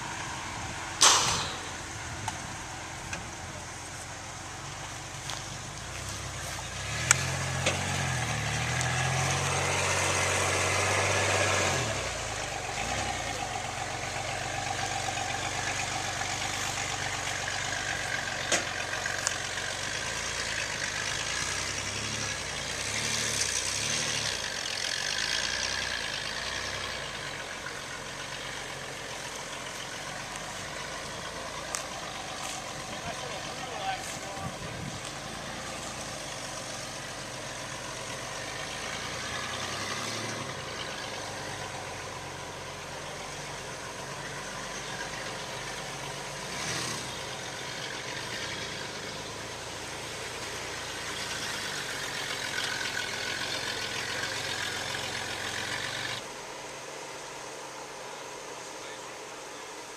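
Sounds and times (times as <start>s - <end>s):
car engine revving: 0.0s - 56.3s
sharp pops from suspension: 1.0s - 2.4s.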